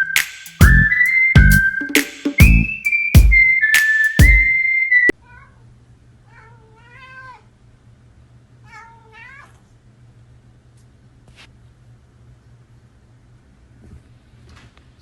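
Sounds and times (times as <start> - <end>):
high whistle-like tone: 0.0 - 5.1
cat meowing: 6.3 - 7.4, 8.7 - 9.6.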